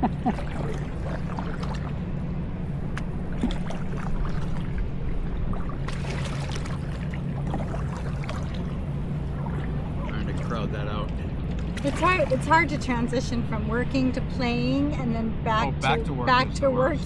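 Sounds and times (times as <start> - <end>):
paddles dipping into water: 0.0 - 12.8
steady low hum: 0.0 - 17.0.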